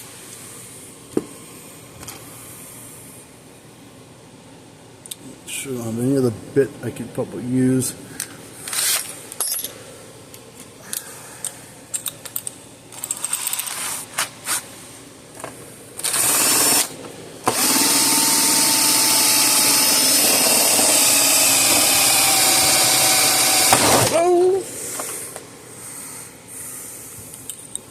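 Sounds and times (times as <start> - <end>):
electric drill boring: 16.0 - 16.9, 17.5 - 24.2.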